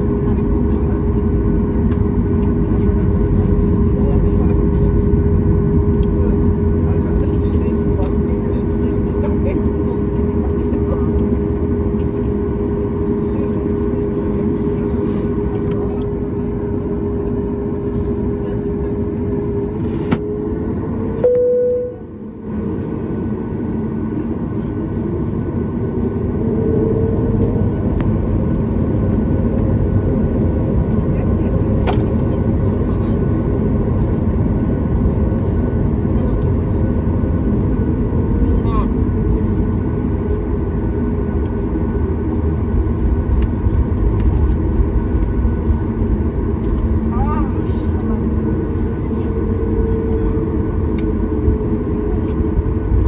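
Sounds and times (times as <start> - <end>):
airplane cabin engine rumble: 0.0 - 53.0
steady tone: 21.2 - 22.4.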